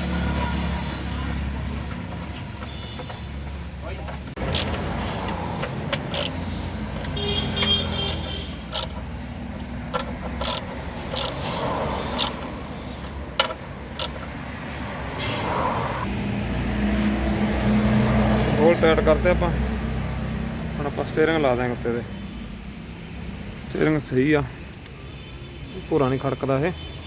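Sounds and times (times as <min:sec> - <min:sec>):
hand tools clanking on metal: 0:01.8 - 0:15.6.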